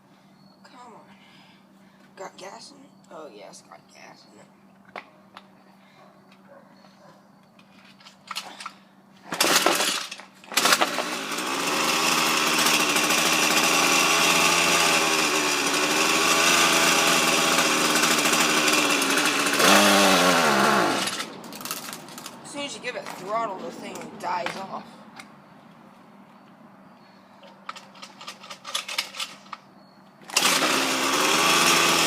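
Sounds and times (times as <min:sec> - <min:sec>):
string trimmer pull-start: 0:08.3 - 0:22.3, 0:30.2 - 0:32.0
string trimmer engine running unevenly: 0:09.4 - 0:22.0, 0:30.3 - 0:32.0.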